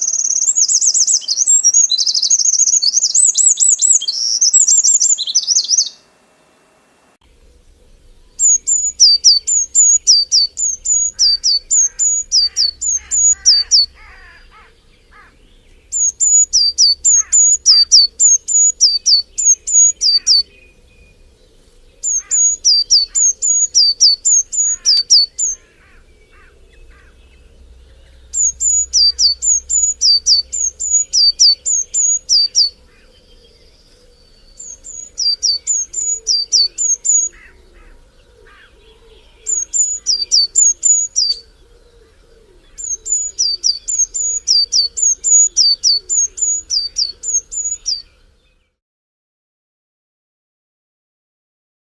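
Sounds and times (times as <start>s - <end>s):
bird singing whistled notes: 0.0s - 6.0s, 7.6s - 48.8s
faint low chirps: 7.3s - 48.4s.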